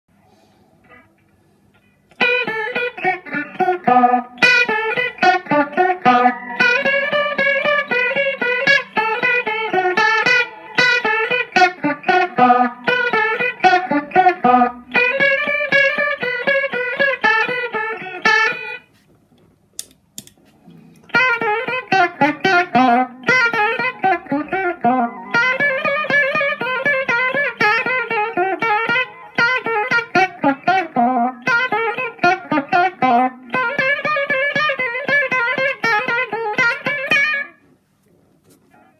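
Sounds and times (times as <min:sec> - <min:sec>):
guitar fast plucked runs: 0:02.1 - 0:18.8, 0:21.1 - 0:37.6
sharp clicks: 0:19.8 - 0:20.4.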